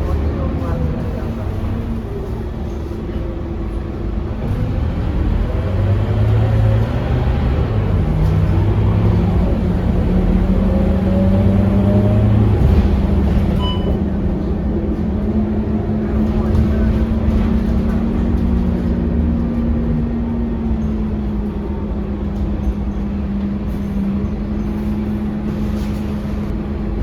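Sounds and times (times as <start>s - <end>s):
bus engine running: 0.0s - 27.0s
rising drivetrain whine: 4.4s - 15.0s.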